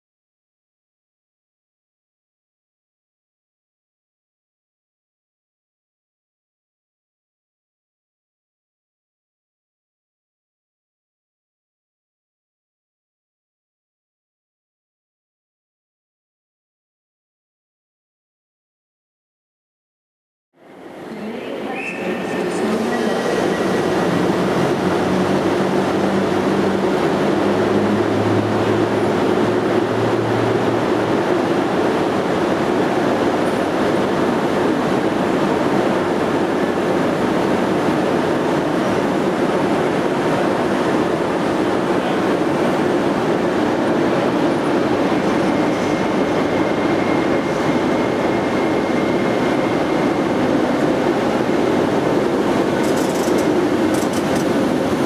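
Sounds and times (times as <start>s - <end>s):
train rumbling on rails: 20.6s - 55.0s
faint high whine: 43.8s - 55.0s.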